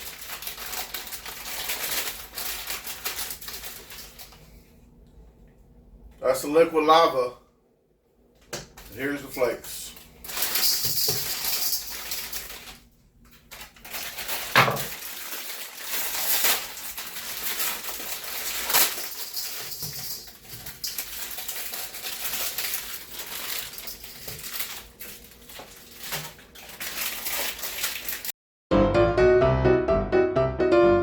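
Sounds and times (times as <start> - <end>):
plastic packets crinkling: 0.0 - 4.5, 8.8 - 28.3
dishes clattering: 14.5 - 15.0.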